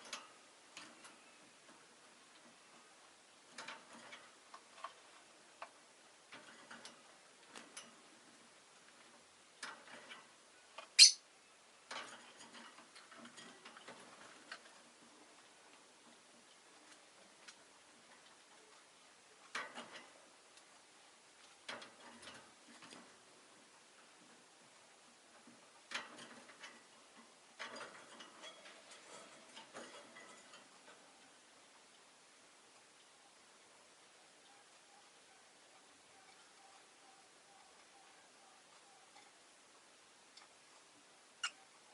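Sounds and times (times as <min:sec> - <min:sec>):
bird clicks and rustling: 0:00.0 - 0:11.1, 0:11.8 - 0:32.1, 0:34.4 - 0:41.9
sharp high bird chirp: 0:11.0 - 0:11.2.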